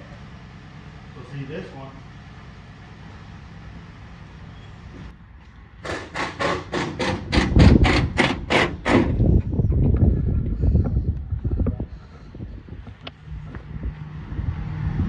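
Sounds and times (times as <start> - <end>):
rapid sharp knocks: 5.8 - 9.2
wind rumbling on microphone: 7.3 - 15.0.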